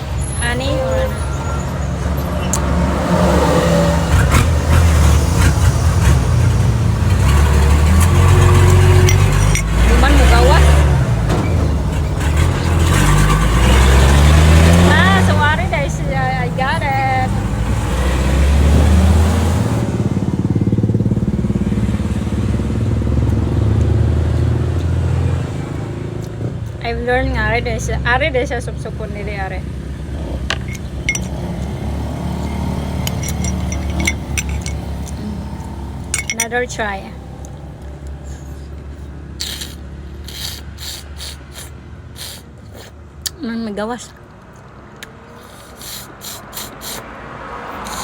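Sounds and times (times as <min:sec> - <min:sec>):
engine humming: 0:00.0 - 0:48.0
motor engine running: 0:29.9 - 0:38.8.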